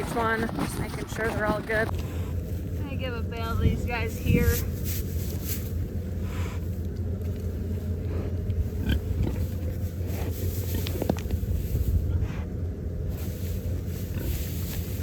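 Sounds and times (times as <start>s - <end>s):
steady low rumble: 0.0s - 15.0s
pigs grunting: 7.5s - 11.3s, 13.7s - 15.0s.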